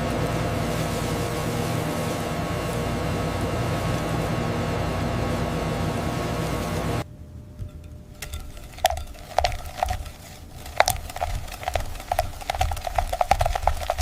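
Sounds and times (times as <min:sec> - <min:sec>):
steady machine hum: 0:00.0 - 0:14.0
small objects clinking on metal: 0:08.2 - 0:14.0.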